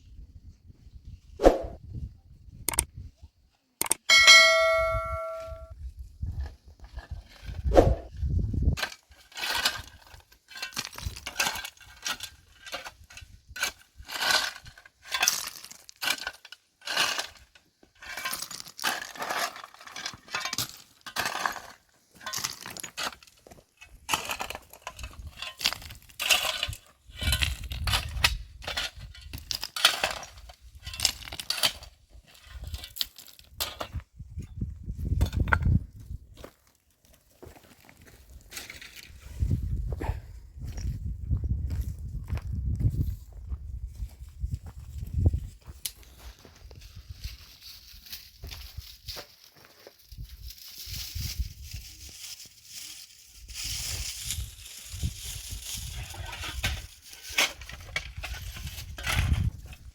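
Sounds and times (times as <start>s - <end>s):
ringing metallic ding: 4.1s - 5.7s.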